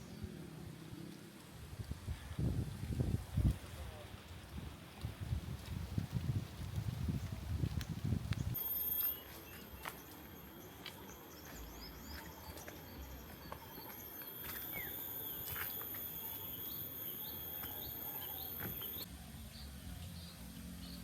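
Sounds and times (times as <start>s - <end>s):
birds chirping: 8.3s - 21.0s
insects high-pitched whine: 8.6s - 19.1s.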